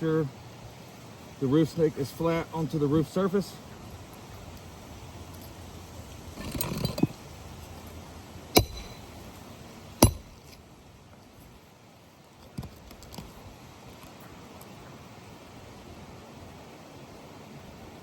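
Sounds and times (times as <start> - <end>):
scraping rustle: 6.3 - 7.8
hammer striking metal: 8.6 - 9.1, 10.0 - 10.4.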